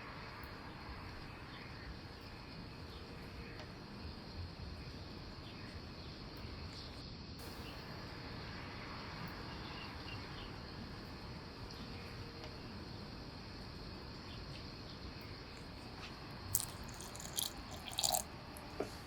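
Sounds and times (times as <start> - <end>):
faint insect chirps: 0.0 - 18.8
faint bird chirps: 9.3 - 10.6.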